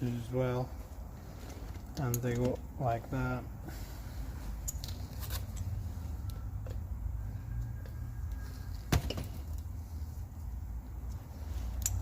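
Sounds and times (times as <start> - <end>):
metal parts clicking: 4.6 - 5.7.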